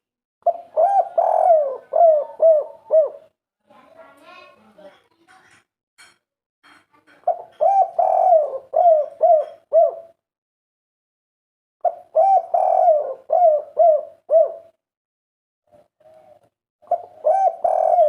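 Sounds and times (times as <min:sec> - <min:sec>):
dove cooing: 0:00.4 - 0:03.3, 0:07.2 - 0:10.2, 0:11.8 - 0:14.8, 0:15.7 - 0:18.0.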